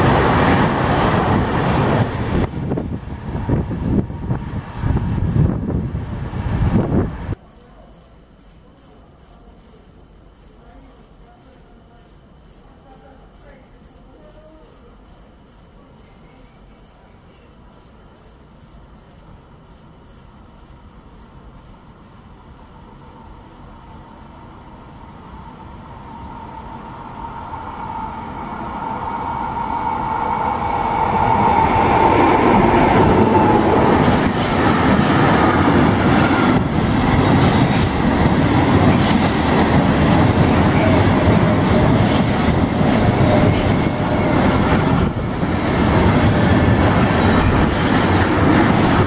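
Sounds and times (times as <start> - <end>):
train approaching with hum: 0.0 - 7.4, 15.5 - 49.0
train passing loudly: 0.0 - 7.4, 22.9 - 49.0
cricket chirping: 6.0 - 34.3.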